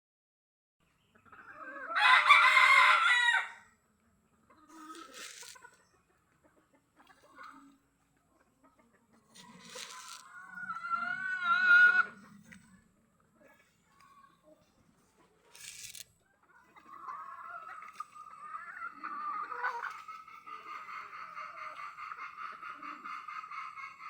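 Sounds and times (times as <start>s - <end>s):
chickens calling: 0.9s - 3.7s, 4.4s - 24.0s
rooster crowing: 1.9s - 3.6s.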